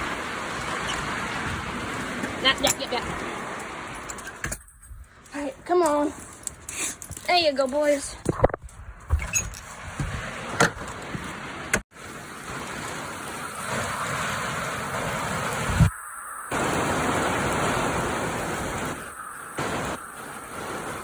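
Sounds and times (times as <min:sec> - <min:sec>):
heavy rain pouring: 0:00.0 - 0:04.6, 0:09.9 - 0:21.0.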